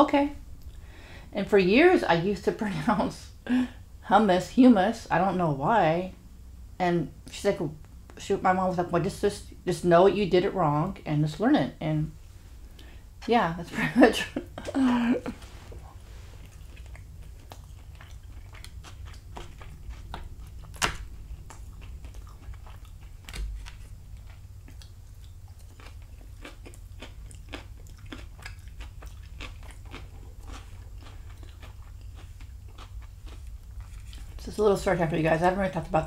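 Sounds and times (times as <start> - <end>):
chewing with wet mouth clicks: 16.4 - 34.4.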